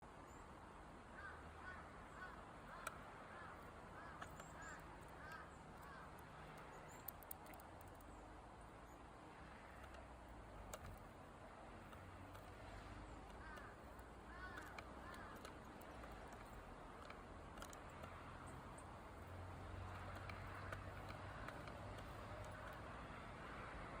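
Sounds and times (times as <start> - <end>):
woodpecker tapping: 2.2 - 8.1, 11.8 - 23.3
woodpecker chirps: 2.2 - 8.2, 12.4 - 23.3.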